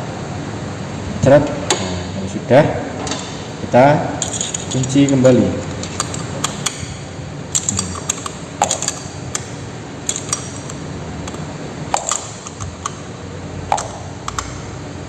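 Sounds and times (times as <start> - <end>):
metal tools clinking: 4.2 - 11.4.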